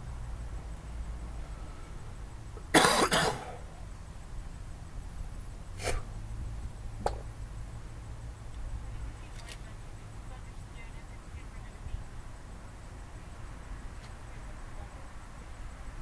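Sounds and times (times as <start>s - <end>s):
low steady hum: 0.0s - 16.0s
person coughing: 2.8s - 3.5s.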